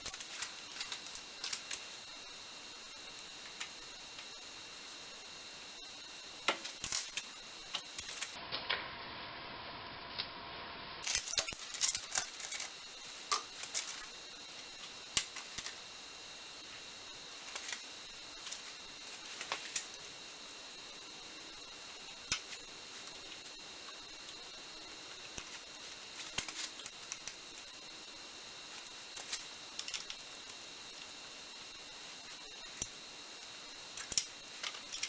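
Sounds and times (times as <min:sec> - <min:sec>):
metal parts clicking and clinking: 0:11.0 - 0:14.1.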